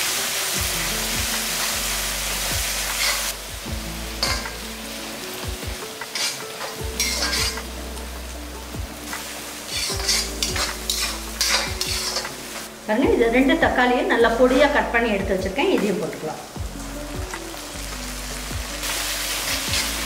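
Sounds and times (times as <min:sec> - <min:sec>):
onions sizzling in oil: 0:00.0 - 0:20.0
utensil scraping a pan: 0:03.0 - 0:03.3, 0:06.0 - 0:07.6, 0:09.7 - 0:12.7.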